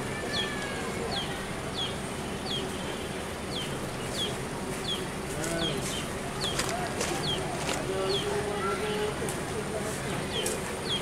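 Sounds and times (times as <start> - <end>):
bird chirping: 0.3 - 2.9, 3.5 - 9.0.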